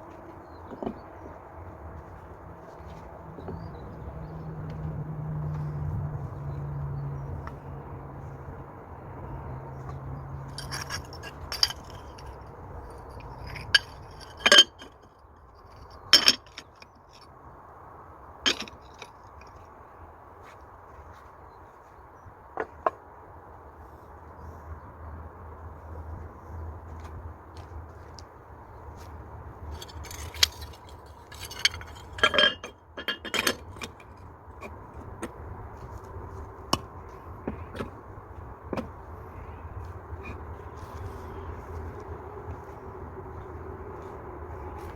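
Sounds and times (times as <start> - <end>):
bricks clinking and knocking: 10.5 - 15.0, 15.8 - 17.2, 18.4 - 19.5, 29.7 - 35.3.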